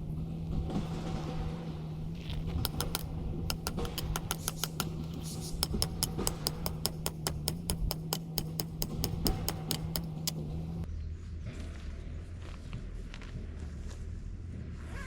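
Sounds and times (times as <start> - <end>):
steady low hum: 0.0 - 14.7
fast sharp clicks: 2.4 - 10.4.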